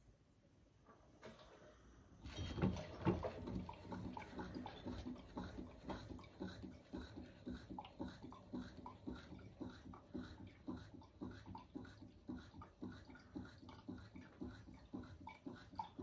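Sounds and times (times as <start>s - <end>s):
animal making rhythmic sounds: 3.5s - 16.0s.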